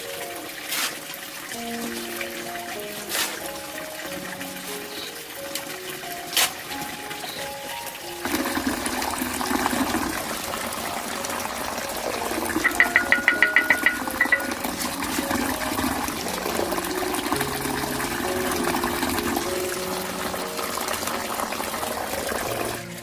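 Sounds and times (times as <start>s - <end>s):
background music melody: 0.0s - 23.0s
bright ticks: 12.6s - 14.8s.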